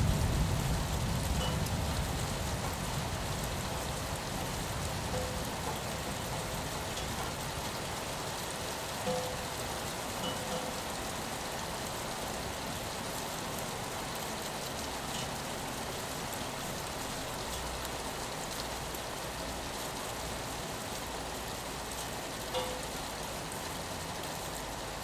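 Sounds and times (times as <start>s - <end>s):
rain on a window: 0.0s - 25.0s.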